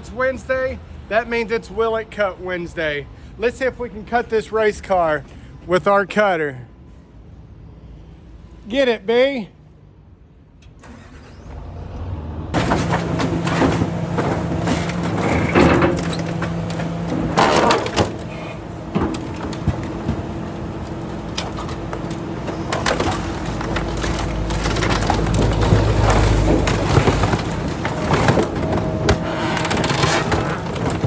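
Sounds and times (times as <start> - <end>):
excavator engine under load: 10.6 - 31.0
metal crunching and tearing: 12.6 - 31.0.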